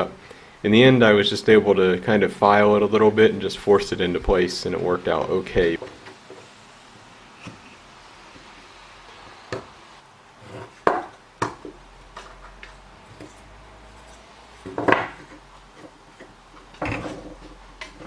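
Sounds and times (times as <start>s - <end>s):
wooden joint rubbing scrape: 7.2s - 18.0s.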